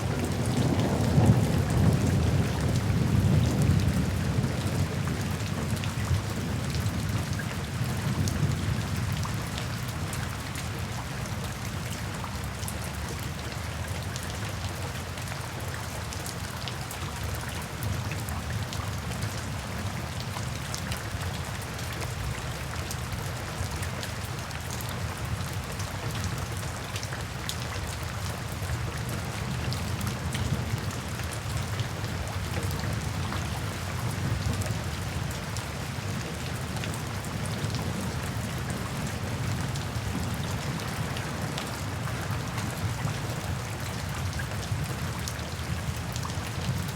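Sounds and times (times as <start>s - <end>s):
low rumble of thunder: 0.0s - 10.4s
heavy rain: 0.0s - 46.9s
raindrops striking a surface: 0.0s - 46.9s.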